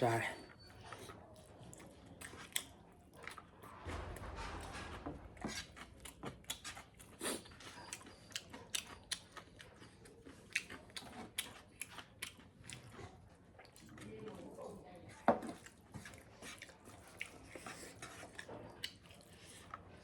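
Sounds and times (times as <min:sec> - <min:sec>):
person chewing food: 0:00.8 - 0:03.6, 0:06.0 - 0:14.2, 0:15.4 - 0:19.9.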